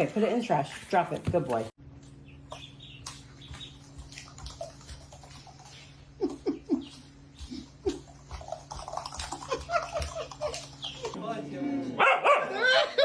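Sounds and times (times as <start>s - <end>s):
dog whining: 12.0s - 13.0s.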